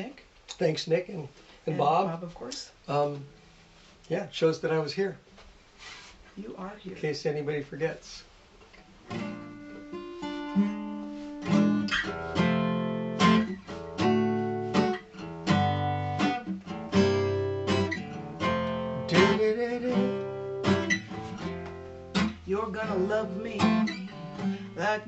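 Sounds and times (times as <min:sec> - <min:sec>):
acoustic guitar chords: 0:09.1 - 0:25.0.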